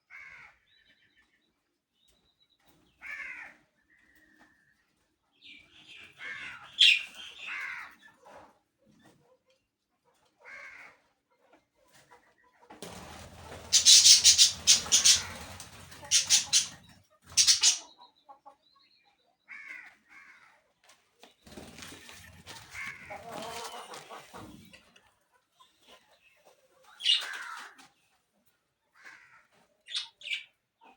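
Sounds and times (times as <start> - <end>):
birds squawking: 6.2 - 7.9, 13.0 - 17.9, 27.0 - 27.6
wings flapping: 12.8 - 17.8, 21.4 - 24.2.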